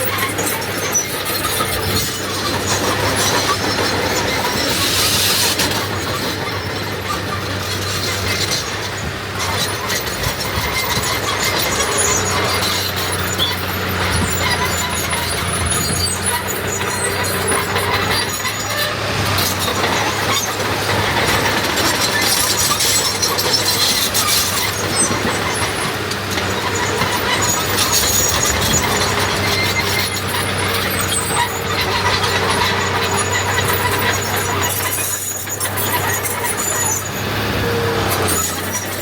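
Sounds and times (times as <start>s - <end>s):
heavy diesel machinery running: 0.0s - 39.0s
high-pitched squeaks: 21.6s - 39.0s.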